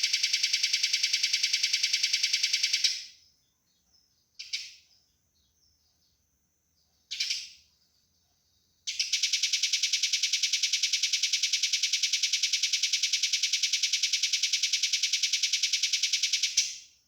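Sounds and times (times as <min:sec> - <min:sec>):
single sparrow chirps: 0:03.7 - 0:06.2, 0:06.8 - 0:08.1.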